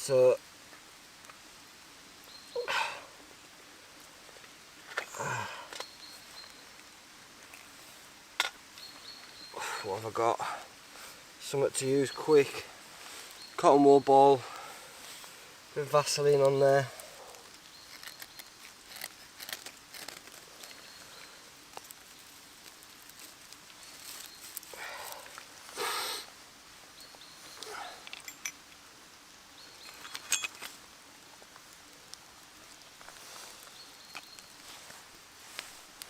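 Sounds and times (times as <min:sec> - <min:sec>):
small clicks and rustles: 0:04.0 - 0:09.4, 0:16.3 - 0:25.8, 0:27.1 - 0:28.8, 0:29.8 - 0:36.0.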